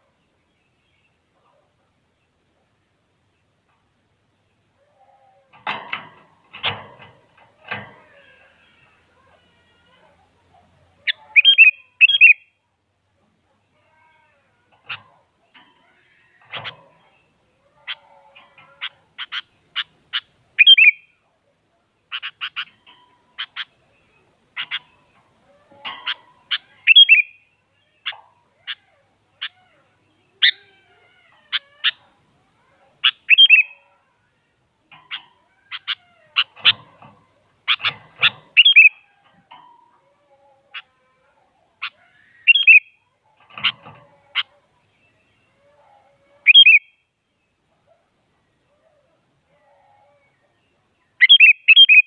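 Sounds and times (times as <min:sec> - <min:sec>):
bulbul calling: 0:11.1 - 0:12.4, 0:17.8 - 0:21.1, 0:25.8 - 0:27.4, 0:33.0 - 0:33.8, 0:34.9 - 0:39.6, 0:41.8 - 0:45.3, 0:46.4 - 0:46.9, 0:51.2 - 0:52.0.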